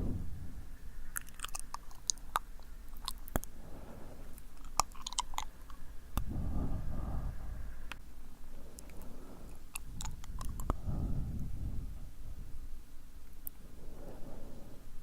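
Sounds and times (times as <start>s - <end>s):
wet mouth clicks and smacks: 1.1s - 3.6s, 4.3s - 6.3s, 8.7s - 11.5s
breathy rush of air: 3.5s - 4.6s, 5.8s - 12.9s, 13.6s - 15.0s.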